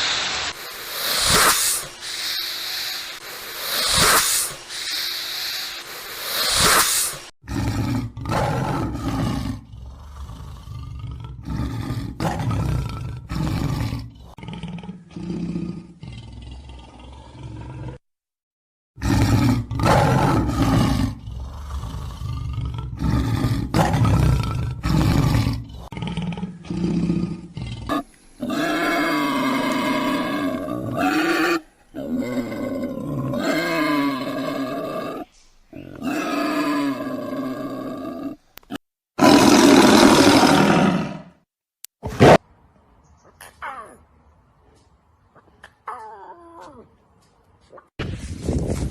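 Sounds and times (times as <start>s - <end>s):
big cat roaring: 7.4s - 18.0s, 19.0s - 38.4s, 39.2s - 41.4s.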